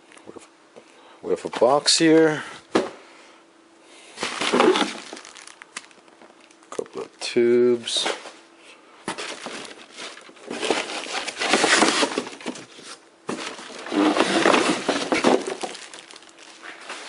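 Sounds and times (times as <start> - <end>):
packaging rustling and crinkling: 4.2 - 7.1, 9.1 - 17.0.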